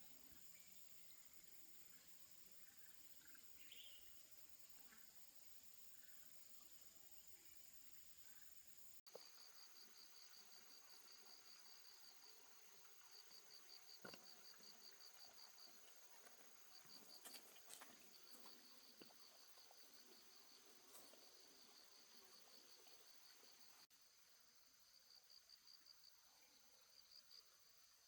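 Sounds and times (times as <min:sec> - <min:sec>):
insects chirping: 0:00.0 - 0:28.0.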